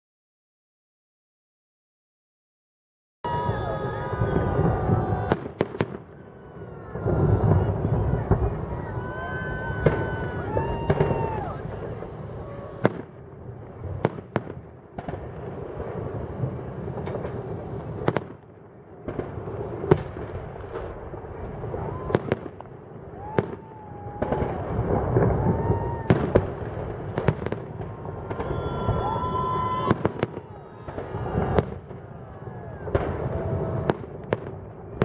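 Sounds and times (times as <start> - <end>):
low rumble of fireworks: 3.3 - 35.0
firework shells bursting: 6.9 - 12.9, 15.8 - 18.2.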